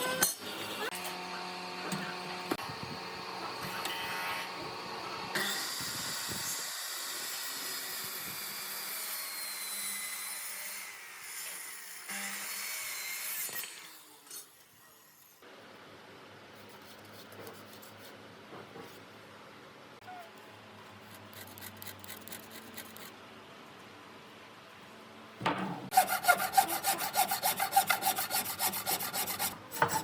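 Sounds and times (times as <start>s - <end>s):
tool rasping on wood: 21.1s - 23.1s, 25.9s - 30.0s.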